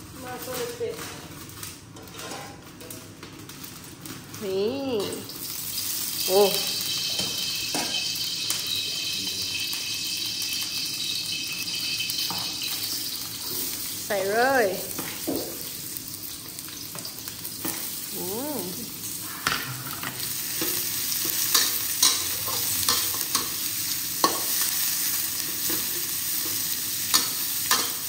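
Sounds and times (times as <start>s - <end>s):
onions sizzling in hot oil: 0.0s - 28.0s
metal spatula scraping a pan: 2.0s - 2.6s.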